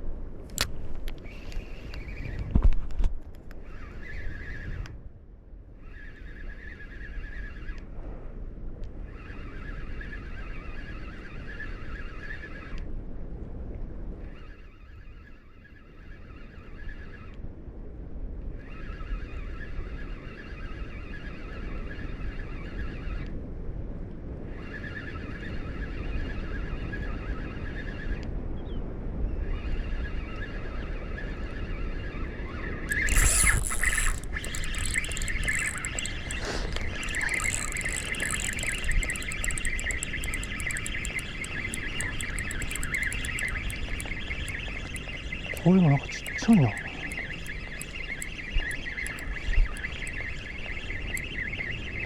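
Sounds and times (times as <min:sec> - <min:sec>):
high buzzing calls: 0:32.9 - 0:52.0.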